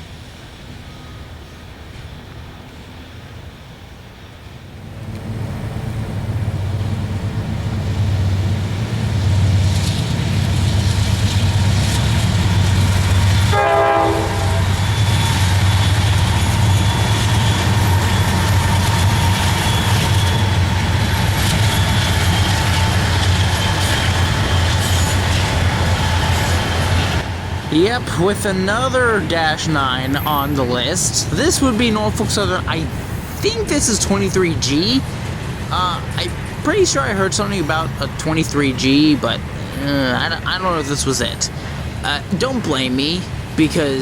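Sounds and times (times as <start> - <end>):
diesel locomotive engine: 0.0 - 44.0
train rolling: 0.0 - 44.0
train horn blast: 13.3 - 15.2.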